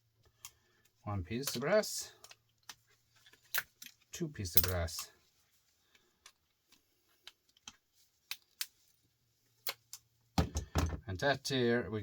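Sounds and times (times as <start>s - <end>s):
metal parts and tools clicking: 2.2s - 5.1s.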